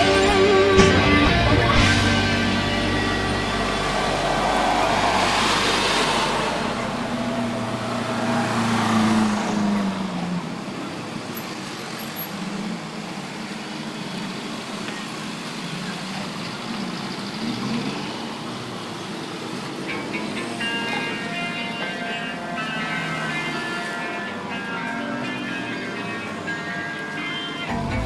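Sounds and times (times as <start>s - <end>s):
vehicle engine passing: 0.0s - 13.6s
road traffic noise: 0.0s - 28.0s.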